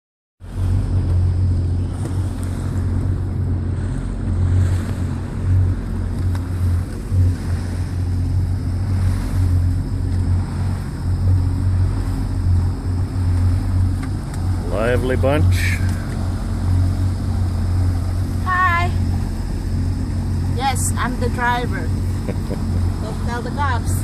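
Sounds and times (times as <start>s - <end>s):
boat engine running: 0.4s - 24.0s
water rushing past hull: 0.4s - 24.0s
wind buffeting microphone: 0.4s - 24.0s.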